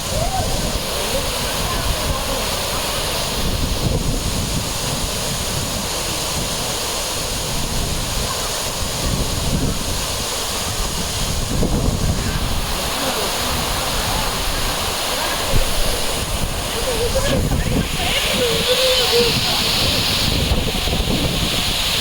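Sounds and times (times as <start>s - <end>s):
waterfall roaring: 0.0s - 22.0s
wind buffeting microphone: 0.0s - 22.0s.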